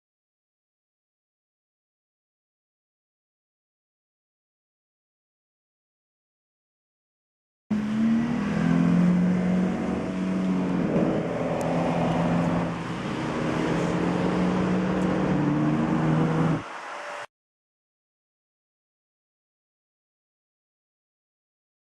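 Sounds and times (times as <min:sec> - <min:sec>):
sports car engine running: 0:07.7 - 0:16.6.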